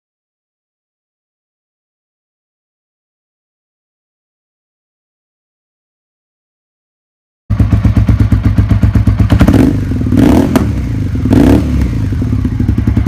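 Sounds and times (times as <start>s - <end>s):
motorcycle engine idling: 7.5s - 13.0s
motorcycle throttle blips: 7.5s - 13.0s.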